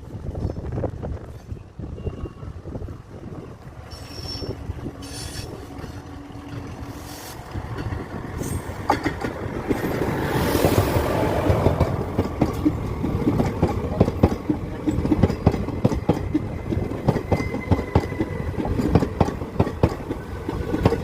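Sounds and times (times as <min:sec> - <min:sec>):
train rumbling on tracks: 0:00.0 - 0:21.0.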